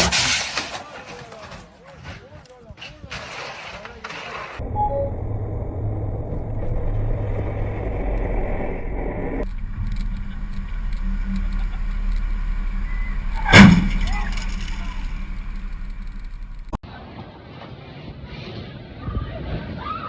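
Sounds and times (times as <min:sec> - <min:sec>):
car road noise from inside: 0:04.9 - 0:16.8
sudden loud bang: 0:09.4 - 0:16.8.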